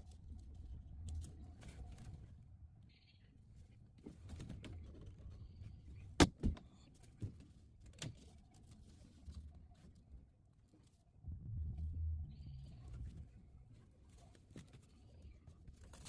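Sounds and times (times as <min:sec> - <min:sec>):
low rumble: 0:11.2 - 0:14.1.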